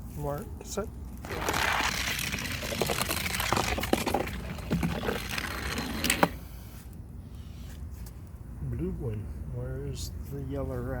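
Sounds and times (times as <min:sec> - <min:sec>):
toy cars rolling down plastic track: 0:01.2 - 0:06.4.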